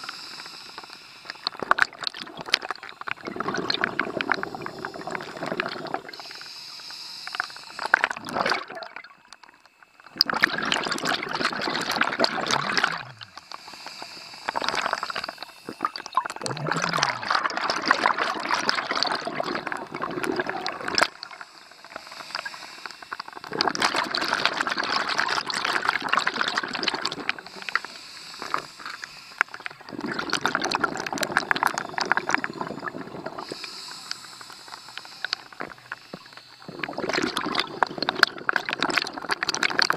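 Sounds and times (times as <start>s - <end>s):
diver's exhaled bubbles rushing: 1.5s - 6.2s, 7.9s - 9.1s, 10.1s - 13.4s, 14.4s - 22.5s, 23.2s - 33.7s, 35.3s - 39.9s.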